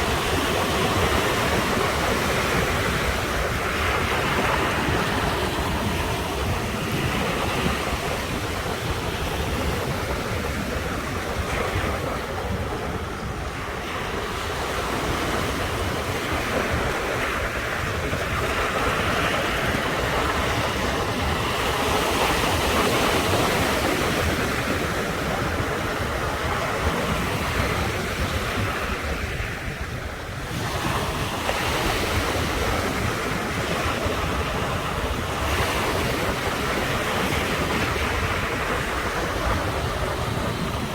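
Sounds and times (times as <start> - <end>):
ocean surf breaking: 0.0 - 40.9
wind rumble on microphone: 0.0 - 40.9.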